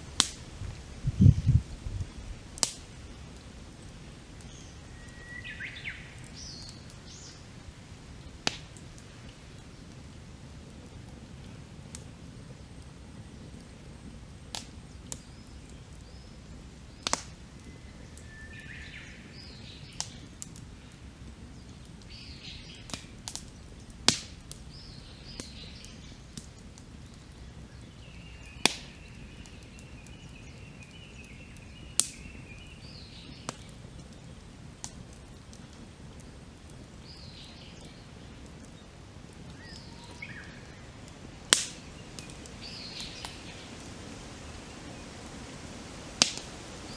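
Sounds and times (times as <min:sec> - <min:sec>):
campfire crackling and popping: 0:00.0 - 0:46.9
low steady hiss: 0:00.0 - 0:46.9
wild birds chirping: 0:02.3 - 0:08.5, 0:15.0 - 0:23.8, 0:24.7 - 0:34.5, 0:36.6 - 0:46.9
bird warbling call: 0:39.6 - 0:40.8.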